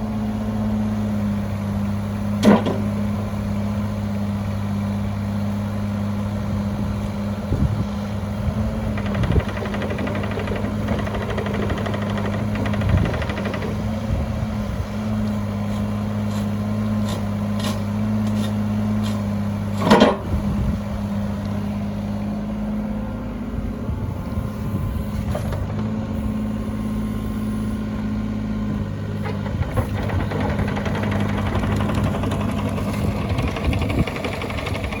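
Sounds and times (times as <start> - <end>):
diesel engine idling: 0.0 - 35.0
clunks: 2.4 - 3.1, 8.6 - 20.5, 25.1 - 35.0.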